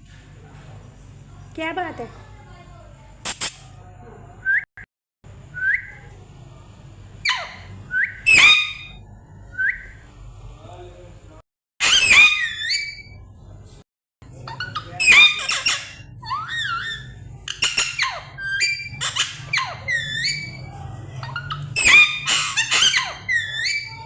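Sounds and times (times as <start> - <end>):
parrot squawking and screeching: 7.2 - 9.1, 11.8 - 13.2, 14.4 - 24.0.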